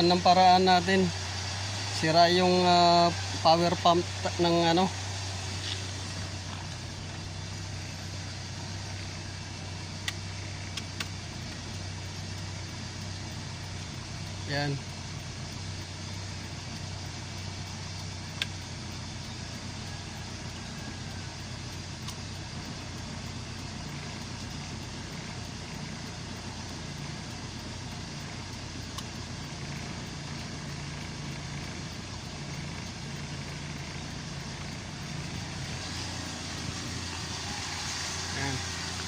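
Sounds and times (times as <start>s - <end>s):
car engine idling: 0.0s - 39.0s
sharp click: 10.0s - 11.8s, 16.2s - 18.7s, 22.0s - 22.9s, 27.3s - 36.0s.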